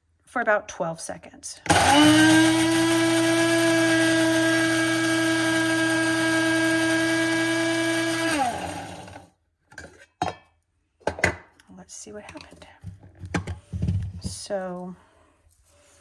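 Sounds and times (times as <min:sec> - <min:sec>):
spice grinder motor whine: 0:01.7 - 0:09.3.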